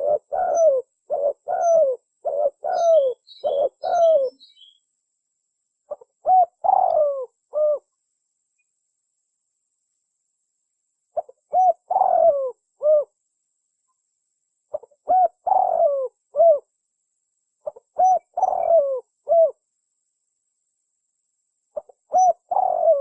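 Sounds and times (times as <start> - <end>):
dove cooing: 0.0 - 4.8, 5.9 - 7.9, 11.2 - 13.2, 14.7 - 16.7, 17.6 - 19.6, 21.8 - 23.0.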